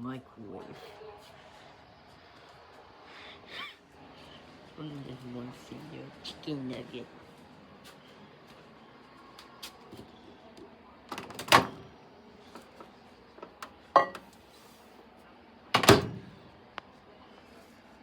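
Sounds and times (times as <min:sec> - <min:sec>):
microwave oven door clunks: 0:11.1 - 0:11.9, 0:13.4 - 0:14.3, 0:15.8 - 0:16.5.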